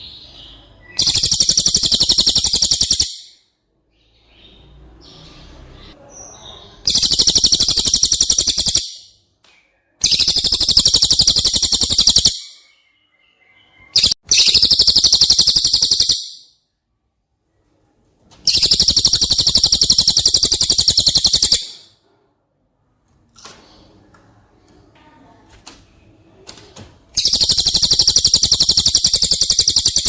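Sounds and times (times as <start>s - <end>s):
bird rapid rattling trills: 1.0s - 3.3s, 6.9s - 9.0s, 10.0s - 12.5s, 13.9s - 16.4s, 18.5s - 21.9s, 27.2s - 30.0s.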